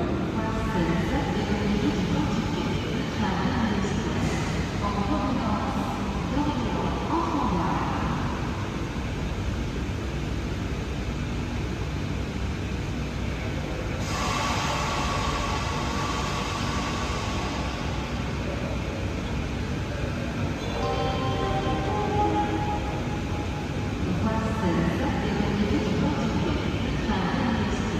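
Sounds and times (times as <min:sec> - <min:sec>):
train rumbling: 0:00.0 - 0:27.9
hiss: 0:14.0 - 0:18.4.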